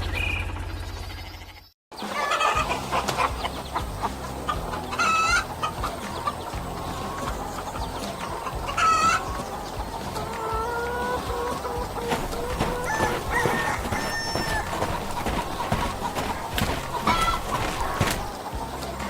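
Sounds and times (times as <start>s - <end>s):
chickens clucking: 0.3s - 19.0s
steady low hum: 11.3s - 19.0s.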